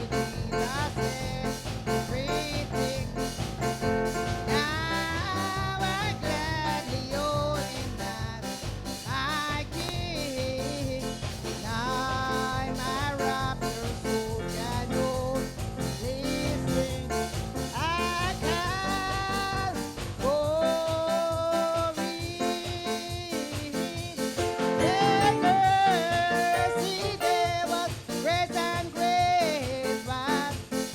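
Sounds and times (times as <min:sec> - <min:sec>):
sliding lead melody: 0:00.0 - 0:15.9, 0:24.2 - 0:29.2
band playing worship music: 0:00.0 - 0:30.9.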